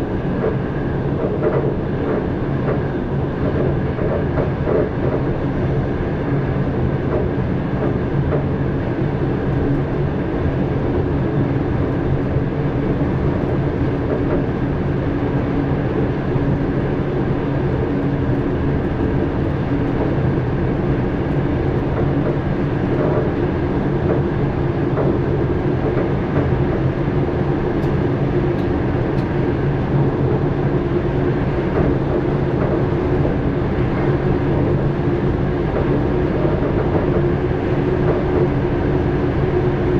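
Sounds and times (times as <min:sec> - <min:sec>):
train wheels rumbling on rail: 0:00.0 - 0:39.9
train motor hum: 0:15.4 - 0:39.9.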